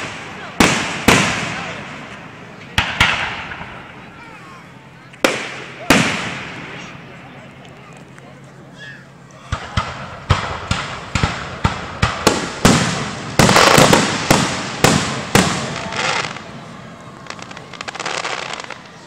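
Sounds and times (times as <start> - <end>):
fireworks bangs: 0.0 - 7.4, 9.5 - 19.0
fireworks crackling: 0.0 - 8.2, 9.5 - 19.0.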